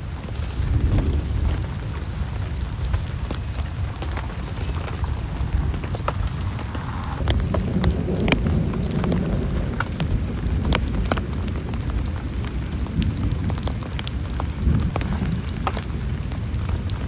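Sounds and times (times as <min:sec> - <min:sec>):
heavy rain: 0:00.0 - 0:17.0
raindrops ticking on surface: 0:00.0 - 0:17.0.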